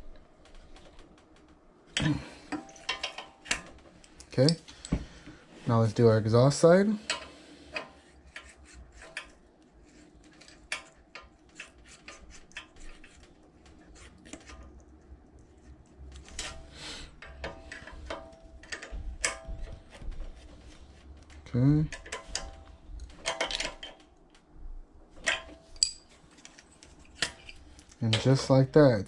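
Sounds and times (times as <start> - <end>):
hand tools clicking on metal: 25.2 - 28.4.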